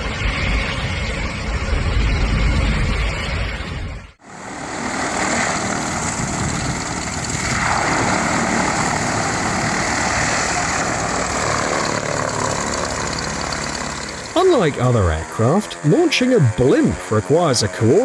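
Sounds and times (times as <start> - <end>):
aircraft engines rushing: 4.2 - 18.0.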